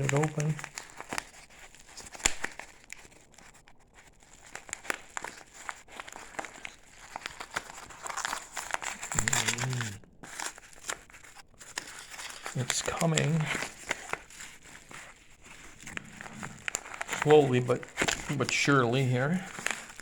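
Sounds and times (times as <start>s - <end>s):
plastic packaging crinkling: 0.0s - 20.0s
person humming or grunting: 9.2s - 10.0s.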